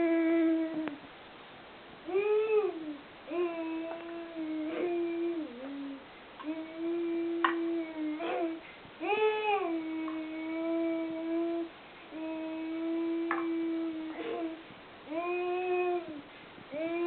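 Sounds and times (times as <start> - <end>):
high voice humming notes: 0.0 - 1.0, 2.0 - 17.0.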